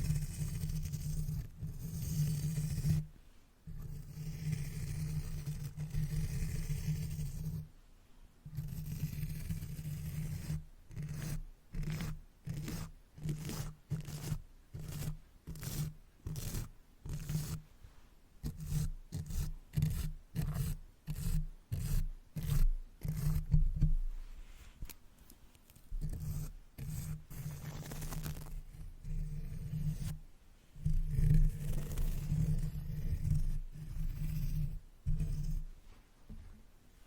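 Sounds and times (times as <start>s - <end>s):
brush swishing over microphone: 24.1s - 24.9s.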